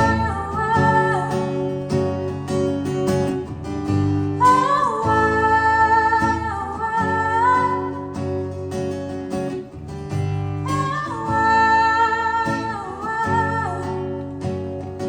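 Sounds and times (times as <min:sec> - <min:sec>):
woman singing: 0:00.0 - 0:02.9, 0:04.3 - 0:08.4, 0:10.6 - 0:15.0
strummed acoustic guitar: 0:00.0 - 0:15.0.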